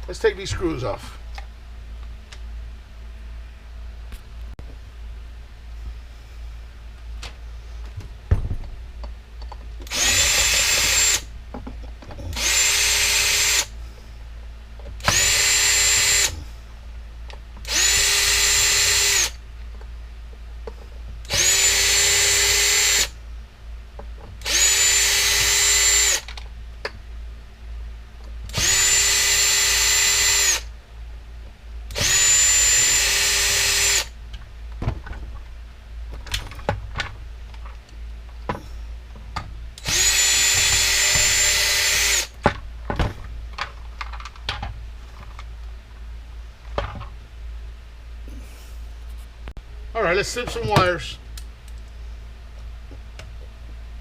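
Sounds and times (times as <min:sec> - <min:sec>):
power drill motor whine: 0:09.8 - 0:11.3, 0:12.2 - 0:13.7, 0:15.0 - 0:16.4, 0:17.6 - 0:19.4, 0:21.2 - 0:23.2, 0:24.4 - 0:26.3, 0:28.5 - 0:30.7, 0:31.9 - 0:34.2, 0:39.8 - 0:42.4.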